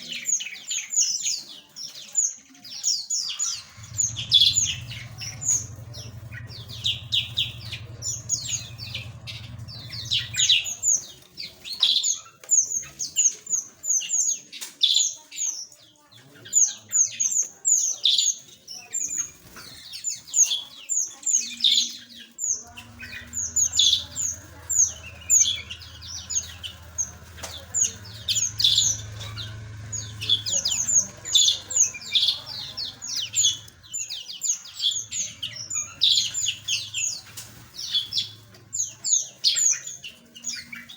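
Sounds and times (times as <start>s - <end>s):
small birds chirping: 0.0s - 40.9s
low hum: 3.5s - 11.6s, 22.6s - 39.1s.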